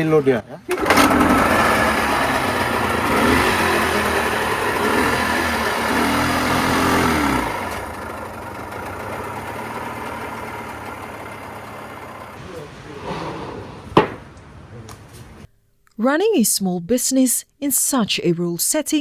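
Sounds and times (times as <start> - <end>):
outboard boat motor running: 0.7 - 12.4.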